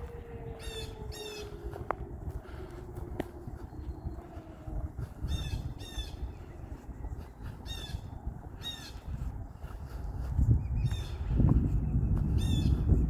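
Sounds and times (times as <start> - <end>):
bird harsh crow-like calls: 0.0 - 2.8, 3.7 - 6.7, 7.6 - 9.2
low rumble: 0.0 - 13.0.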